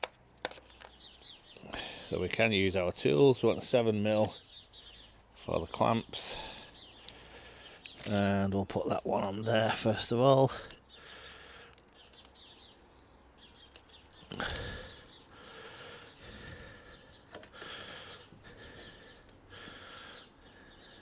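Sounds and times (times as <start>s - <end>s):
faint bird chirps: 10.5s - 21.0s
small clicks of hose clamps: 11.7s - 12.4s, 17.3s - 17.8s.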